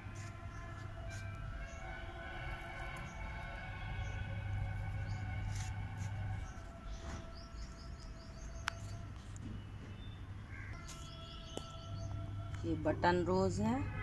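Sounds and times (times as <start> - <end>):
steady low drone: 0.0 - 9.2.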